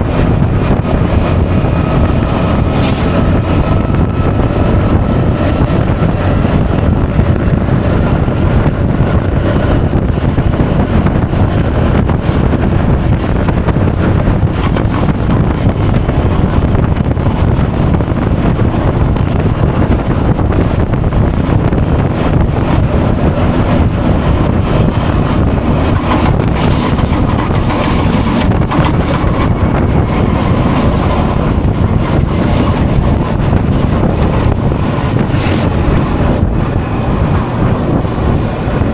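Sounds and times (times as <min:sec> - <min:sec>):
road noise: 0:00.0 - 0:38.9
wind buffeting microphone: 0:00.0 - 0:38.9.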